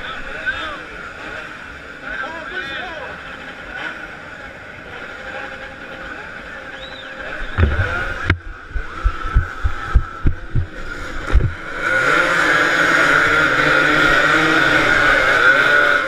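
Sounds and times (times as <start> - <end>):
motorcycle engines revving: 0.0 - 16.0
sharp low thumps: 7.4 - 11.6.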